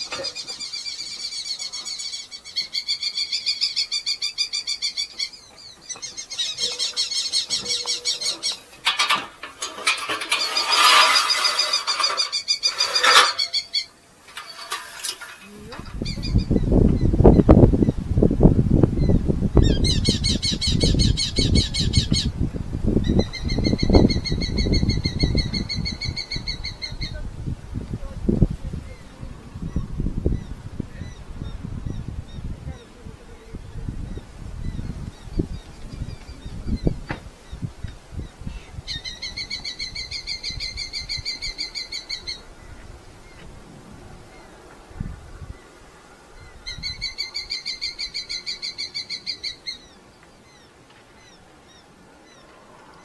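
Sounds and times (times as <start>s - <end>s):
falcon chattering calls: 0.0s - 8.7s, 10.2s - 13.9s
handling rustling and knocks: 7.5s - 16.0s.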